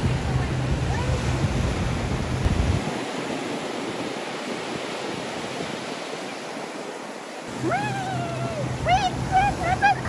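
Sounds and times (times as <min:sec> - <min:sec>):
wind rumbling on microphone: 0:00.0 - 0:06.1
ocean surf washing onto beach: 0:00.0 - 0:10.0.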